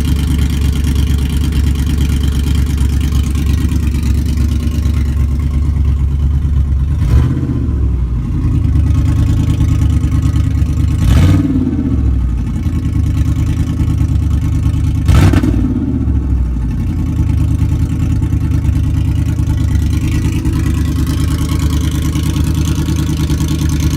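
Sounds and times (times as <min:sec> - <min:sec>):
car engine idling: 0:00.0 - 0:23.9
engine revving: 0:06.8 - 0:23.9.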